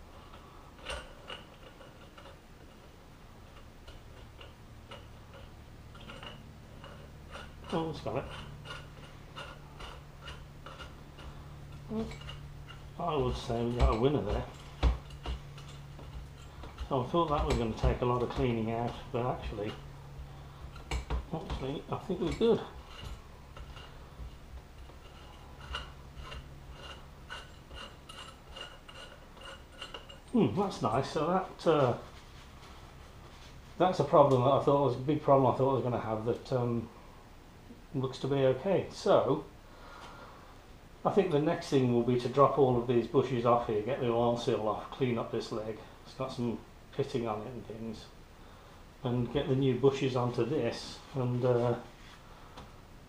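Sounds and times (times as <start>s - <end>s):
metal plug screwing ticks and scrapes: 0.3s - 20.0s, 20.7s - 31.1s.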